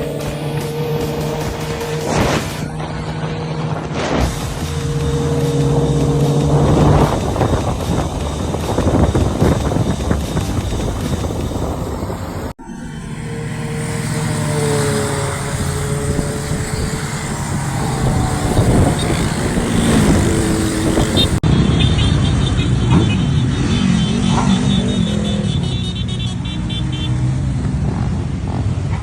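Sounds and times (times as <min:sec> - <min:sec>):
motorcycle engines revving: 0:00.0 - 0:29.0.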